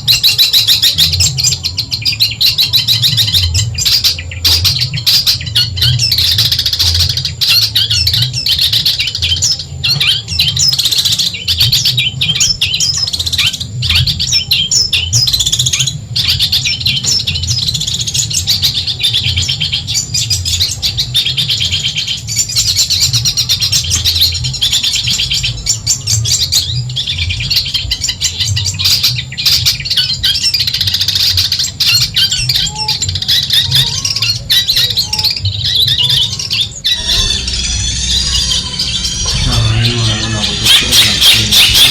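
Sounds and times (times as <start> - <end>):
bird chattering chirps and trills: 0.0 - 41.9
steady low hum: 36.6 - 41.9.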